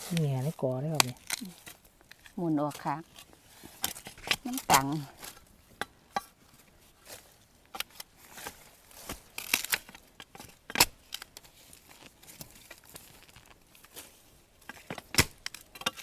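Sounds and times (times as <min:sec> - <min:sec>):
dry leaves rustling: 0:00.0 - 0:15.8
bamboo shoot snapping: 0:00.9 - 0:06.0, 0:07.7 - 0:14.1, 0:14.7 - 0:16.0.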